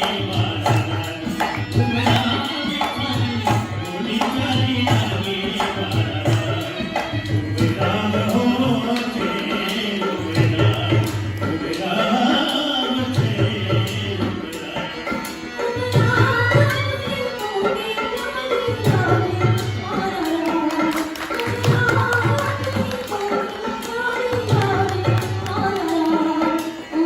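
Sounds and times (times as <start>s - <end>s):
hand drum rhythm: 0.0s - 11.6s, 18.8s - 26.6s.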